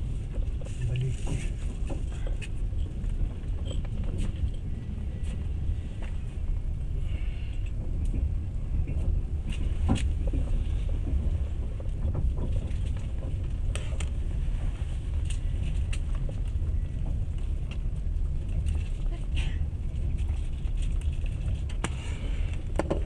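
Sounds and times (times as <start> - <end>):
train wheels rumbling on rails: 0.0 - 23.0
sharp clicks and knocks: 21.7 - 23.0.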